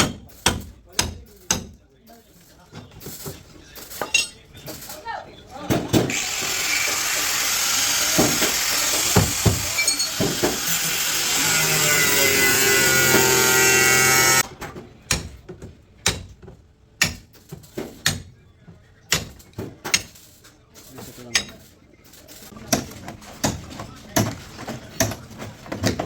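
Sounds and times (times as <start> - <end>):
power tool running: 6.1 - 14.4.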